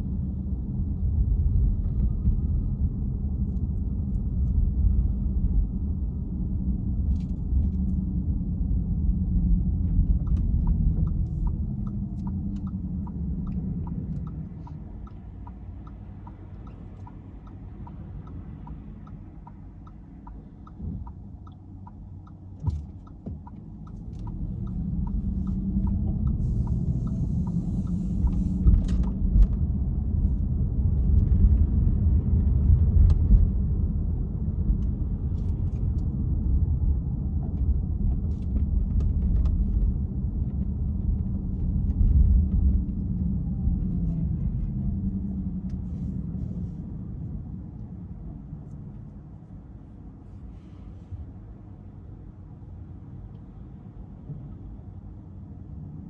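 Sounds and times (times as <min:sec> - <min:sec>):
car road rumble: 0:00.0 - 0:56.0
turn signal ticking: 0:09.8 - 0:29.3.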